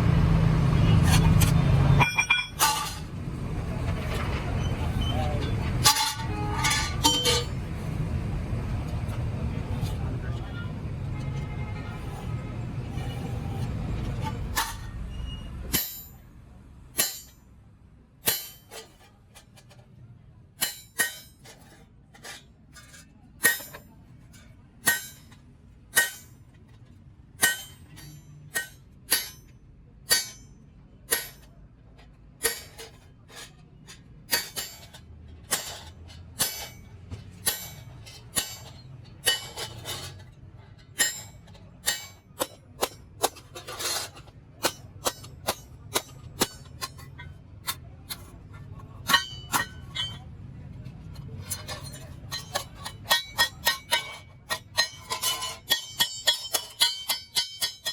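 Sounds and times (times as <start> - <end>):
hammer striking sheet metal: 17.0 - 17.4, 18.2 - 18.8, 23.4 - 23.9, 24.8 - 25.3, 25.9 - 26.3, 27.4 - 29.5, 30.1 - 31.5, 34.3 - 39.7, 41.0 - 43.5, 44.6 - 48.3, 49.0 - 50.2, 51.5 - 57.9.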